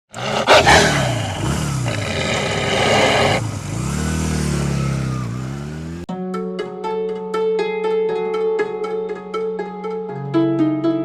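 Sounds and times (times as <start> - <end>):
motorcycle engines revving: 0.1 - 6.1.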